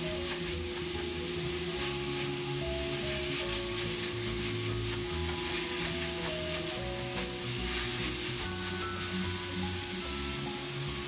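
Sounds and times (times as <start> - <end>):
background music: 0.0 - 11.0
meat sizzling in a skillet: 0.0 - 11.0
spatula stirring: 0.0 - 11.0.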